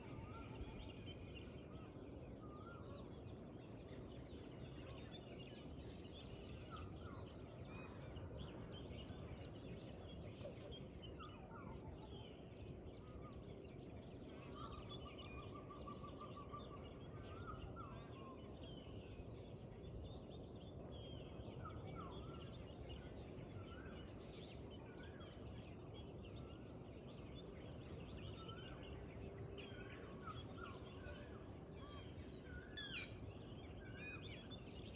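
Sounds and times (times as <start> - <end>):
songbirds chirping and singing: 0.0 - 34.9
bird trill: 32.6 - 33.3.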